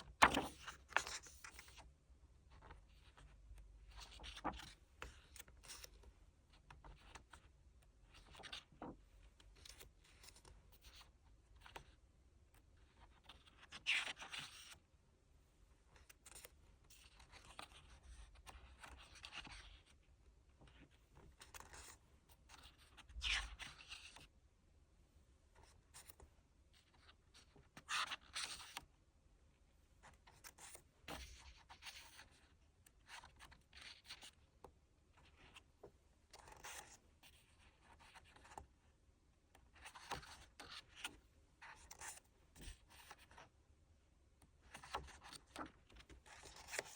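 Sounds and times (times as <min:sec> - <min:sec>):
paper and card rustling: 0:00.0 - 0:01.8.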